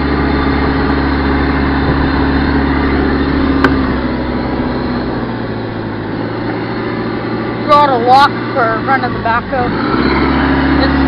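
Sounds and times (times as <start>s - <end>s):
wind on microphone: 0.0s - 6.0s
diesel engine running: 0.0s - 11.0s.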